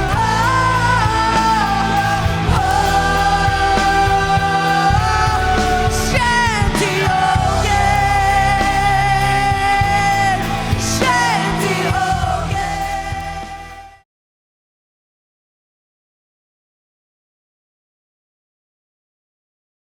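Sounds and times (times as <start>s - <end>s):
drums and bass: 0.0s - 14.0s
person singing: 0.0s - 14.0s.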